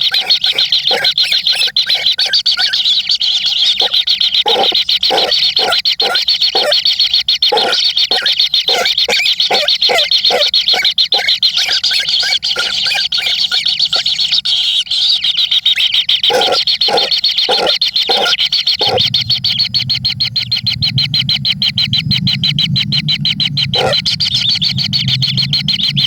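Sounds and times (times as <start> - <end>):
young birds chirping: 0.0 - 26.0
low steady drone: 18.8 - 26.0.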